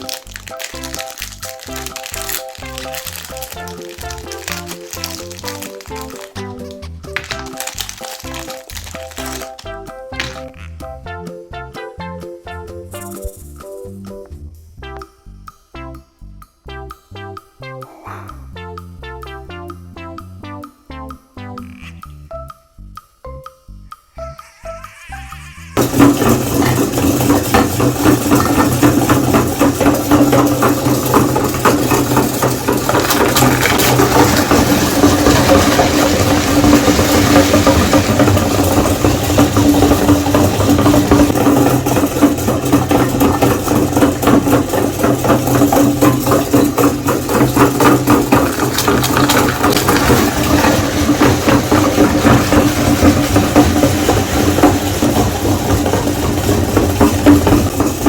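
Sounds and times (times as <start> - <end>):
meat grinder motor hum: 0.0 - 10.3, 24.5 - 58.0
grinder clicks: 0.0 - 10.7, 24.9 - 55.0.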